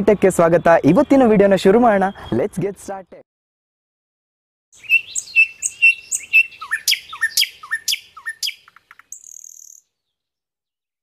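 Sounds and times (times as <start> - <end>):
quick bird chirps: 4.8 - 10.0.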